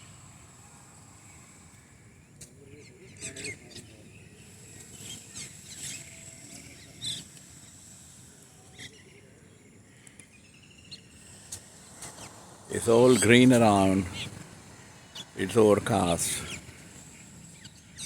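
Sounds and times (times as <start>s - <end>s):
birds chirping: 0.0s - 18.0s
thin steady high tone: 0.0s - 18.0s.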